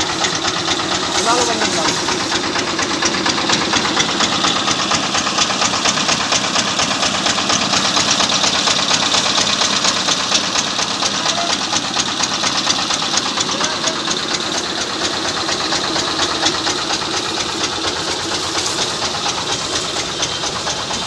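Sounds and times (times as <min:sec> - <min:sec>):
diesel tractor engine clattering: 0:00.0 - 0:21.0.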